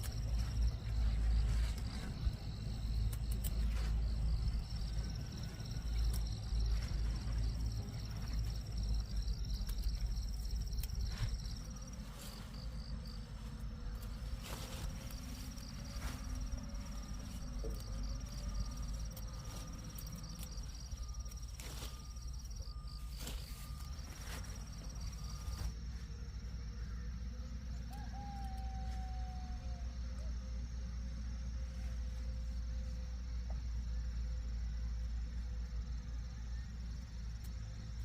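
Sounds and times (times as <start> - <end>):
low rumble: 0.0 - 26.5
high insect trill: 0.0 - 38.0
scattered clicks: 2.6 - 4.2.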